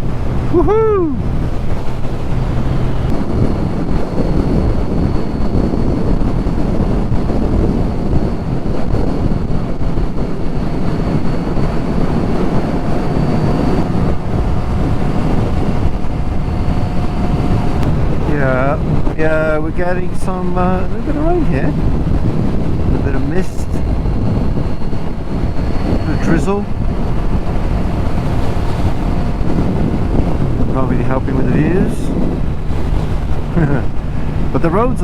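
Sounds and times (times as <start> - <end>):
motorcycle engine running: 0.0 - 19.5, 20.6 - 34.7
wind buffeting microphone: 0.0 - 35.0.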